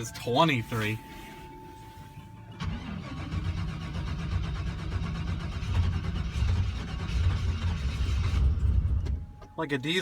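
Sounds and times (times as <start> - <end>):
engine cold-starting and running rough: 2.5 - 9.2
engine clattering: 2.6 - 9.5.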